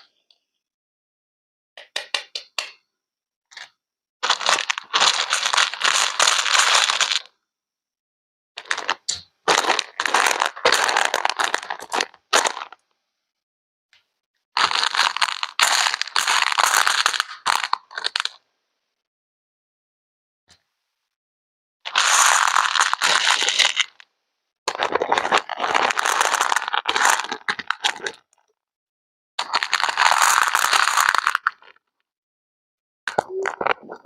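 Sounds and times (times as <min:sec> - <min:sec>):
dense crackling crunching noise: 0:08.6 - 0:12.8, 0:24.7 - 0:28.2.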